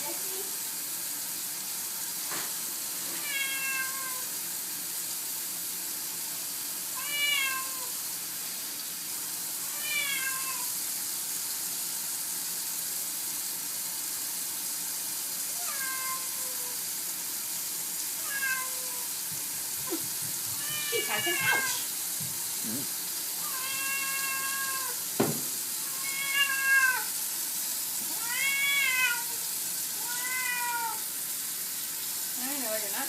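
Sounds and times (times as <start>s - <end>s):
steady hiss: 0.0s - 33.0s
cat meowing: 3.2s - 4.3s, 7.0s - 7.9s, 9.7s - 10.7s, 15.5s - 16.8s, 18.2s - 19.2s, 19.8s - 21.9s, 23.4s - 25.0s, 25.8s - 27.1s, 28.1s - 29.4s, 30.0s - 31.1s.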